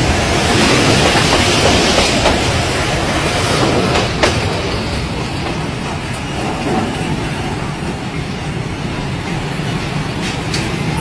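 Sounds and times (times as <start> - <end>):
train carriages rolling past: 0.0 - 11.0.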